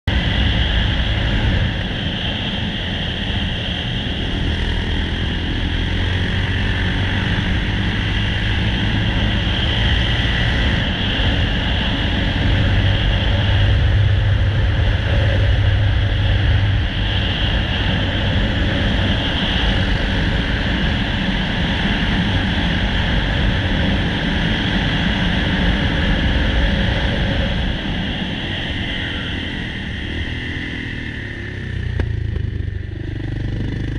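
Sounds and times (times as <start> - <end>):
motorcycle engine running: 0.0 - 20.8, 28.9 - 33.9
wind rush over microphone: 0.0 - 33.9.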